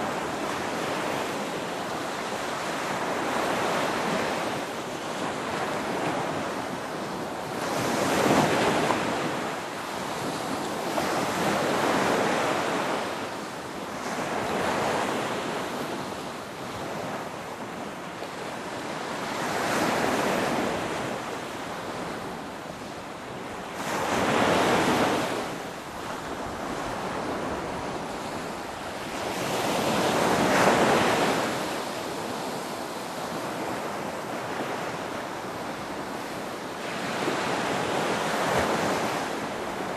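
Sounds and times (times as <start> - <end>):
ocean waves breaking: 18.5 - 39.9.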